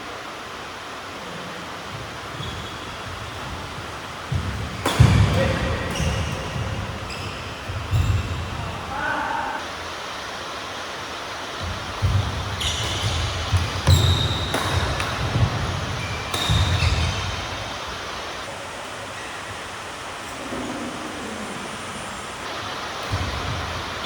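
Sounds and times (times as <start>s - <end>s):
shoes squeaking: 1.9s - 9.6s, 11.6s - 19.7s
racket hitting shuttlecock: 4.3s - 7.1s, 11.6s - 17.8s.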